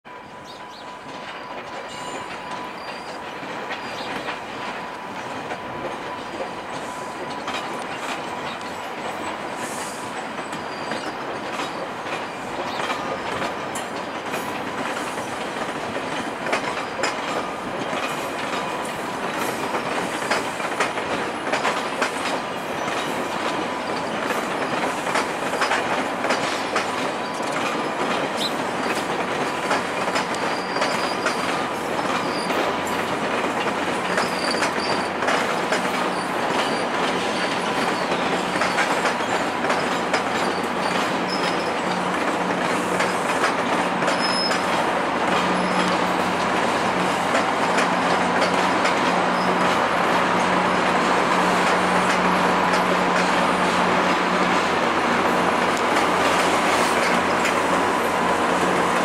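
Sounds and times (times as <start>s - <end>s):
diesel locomotive engines running: 0.1s - 59.0s
wheels clicking over rail joints: 0.6s - 59.0s
wheel squeal: 0.7s - 4.3s, 9.6s - 11.9s, 29.7s - 32.8s, 34.0s - 41.9s, 44.0s - 44.8s, 45.4s - 46.0s.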